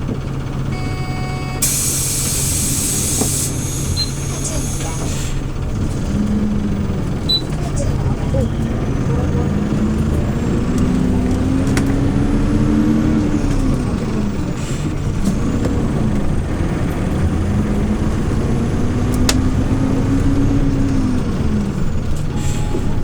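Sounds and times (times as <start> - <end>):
bus engine accelerating: 0.0 - 23.0
short hiss: 1.6 - 4.0.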